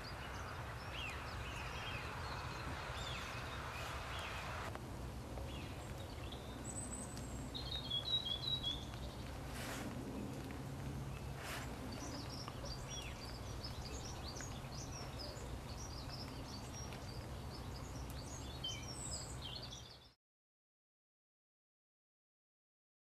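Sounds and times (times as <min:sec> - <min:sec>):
small birds chirping: 0:00.0 - 0:20.2
steady low rumble: 0:08.5 - 0:18.4.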